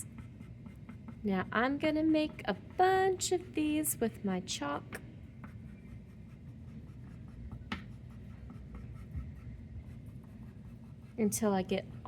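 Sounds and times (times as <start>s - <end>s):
chalk scratching on paper: 0.0s - 1.4s, 5.4s - 12.0s.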